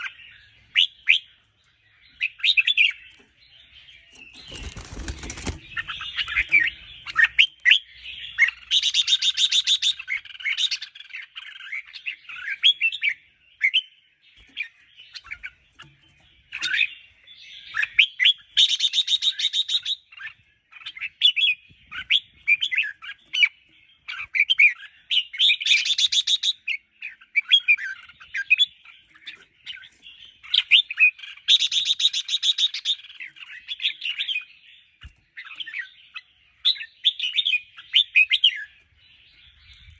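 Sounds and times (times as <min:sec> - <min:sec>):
birds singing warbled phrases: 0:00.0 - 0:39.9
bird rattling chatter: 0:04.3 - 0:06.1.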